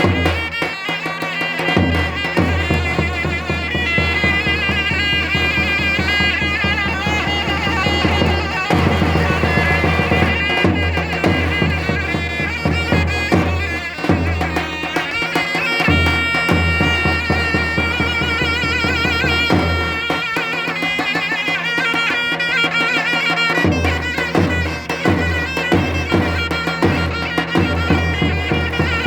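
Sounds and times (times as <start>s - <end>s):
shrill reedy pipe melody: 0.0s - 29.0s
big drum strokes: 2.0s - 13.4s.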